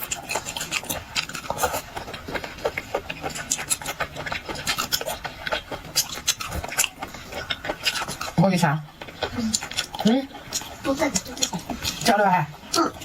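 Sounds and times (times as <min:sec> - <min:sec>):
chewing: 0:00.0 - 0:13.0
seafood shells cracking: 0:00.0 - 0:13.0.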